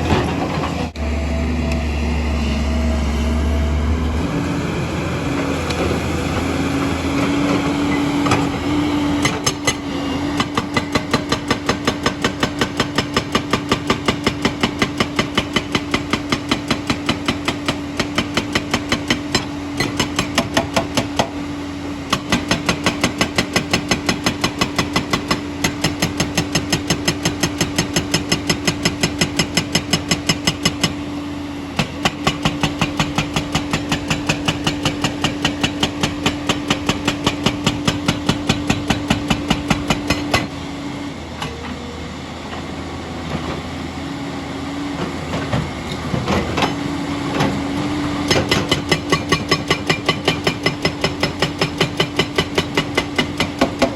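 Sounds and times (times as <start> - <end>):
diesel engine running: 0.0 - 53.9
hydraulic rock breaker hammering stone: 5.7 - 31.1, 31.7 - 40.6, 45.3 - 53.9.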